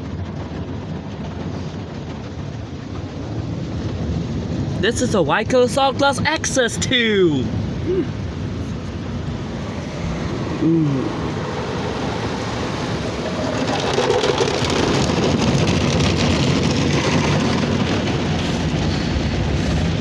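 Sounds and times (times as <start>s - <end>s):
car wash water spray and brushes: 7.5s - 20.0s
rising and falling tone: 7.8s - 13.8s.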